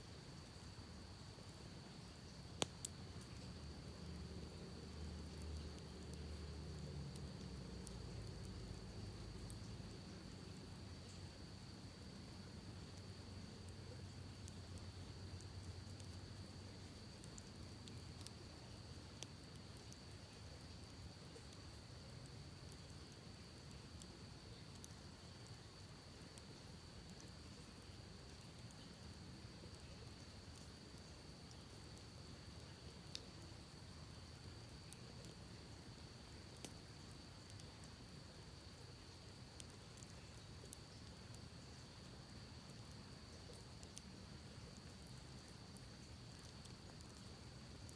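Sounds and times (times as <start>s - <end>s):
campfire crackling and popping: 0.2s - 47.9s
burning wood popping: 2.0s - 6.4s.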